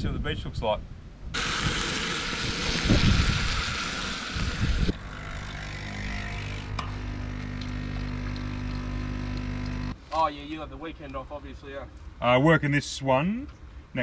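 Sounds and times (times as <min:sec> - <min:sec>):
bacon sizzling in a frying pan: 0:01.4 - 0:04.9
coffee machine pump humming: 0:01.4 - 0:10.0.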